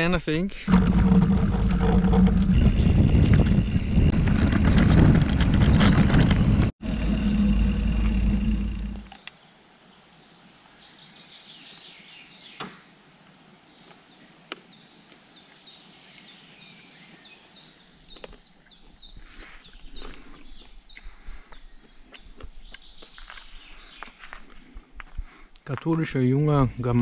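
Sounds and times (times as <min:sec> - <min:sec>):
quiet outdoor background noise: 0:06.8 - 0:27.0.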